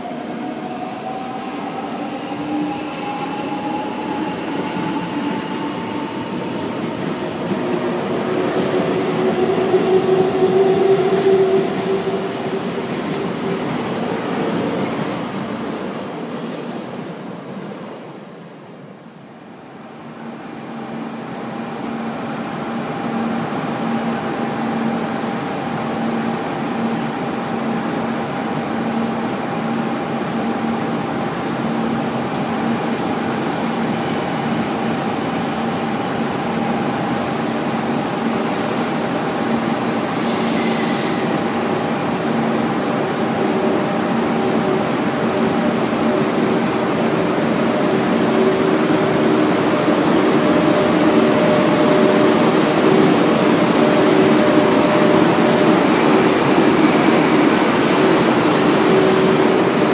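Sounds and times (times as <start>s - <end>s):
freight train passing: 0.0s - 31.4s, 32.4s - 59.9s
short air hisses: 38.2s - 39.1s, 40.1s - 41.2s.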